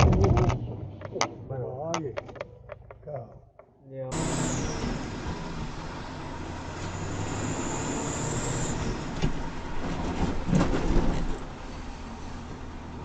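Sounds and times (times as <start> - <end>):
cluster of thumps: 0.0 - 3.7
vehicle running rumble: 0.0 - 13.0.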